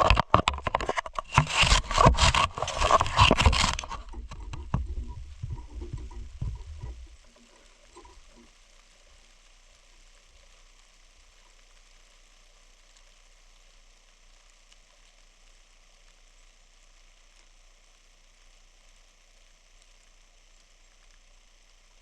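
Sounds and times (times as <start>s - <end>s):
soft bump: 4.1s - 7.2s.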